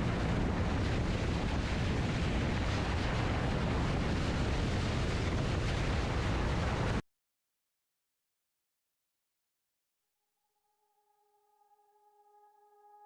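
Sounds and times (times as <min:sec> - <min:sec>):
wind buffeting microphone: 0:00.0 - 0:07.0.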